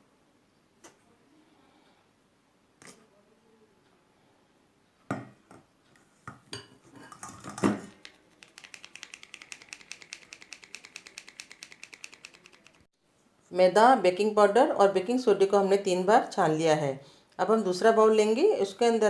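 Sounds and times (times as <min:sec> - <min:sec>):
sieve tapped rapidly ticking: 0:08.0 - 0:12.9.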